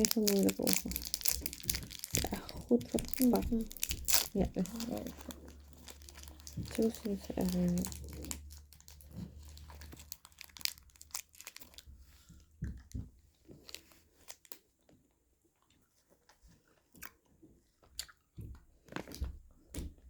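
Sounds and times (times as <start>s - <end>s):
candy wrapper crinkling: 0.0s - 12.4s, 13.5s - 14.7s.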